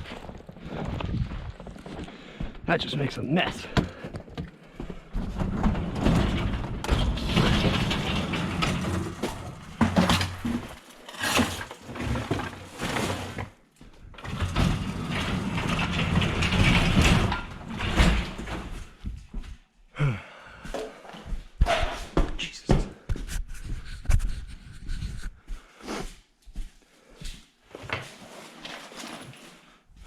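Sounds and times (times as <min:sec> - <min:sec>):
snow plow blade scraping: 0:05.5 - 0:13.5.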